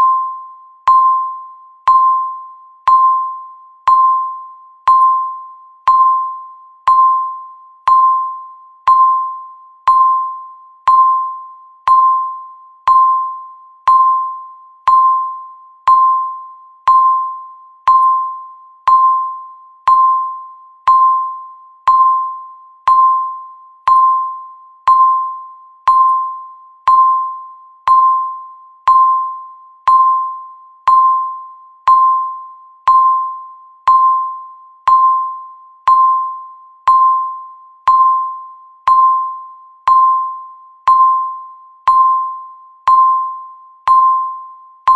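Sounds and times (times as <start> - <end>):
electronic bell-like timer tick: 0.0 - 44.9.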